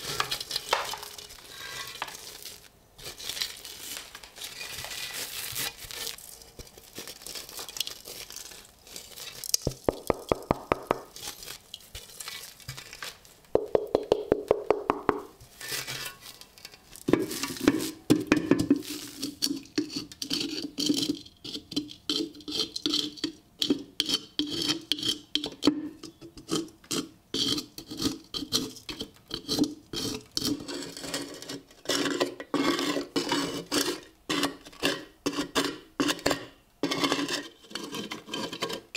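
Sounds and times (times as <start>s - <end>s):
scraping on metal: 0.0s - 2.4s, 15.5s - 18.0s, 18.7s - 38.9s.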